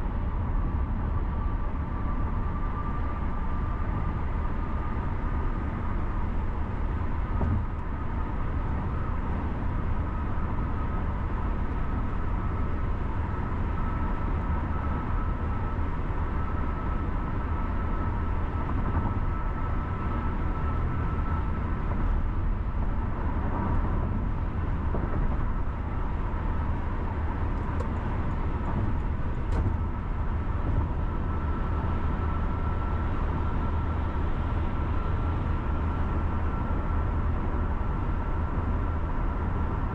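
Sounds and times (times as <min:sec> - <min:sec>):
car engine and tyres rumbling: 0:00.0 - 0:39.9
faint steady whine: 0:00.0 - 0:39.9.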